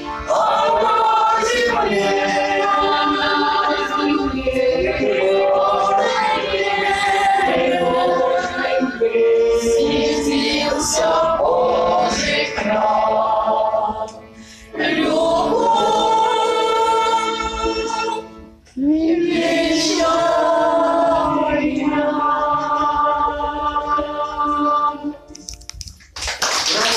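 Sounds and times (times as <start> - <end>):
choir singing held chords: 0.0 - 25.3
choir breaths: 14.2 - 15.2.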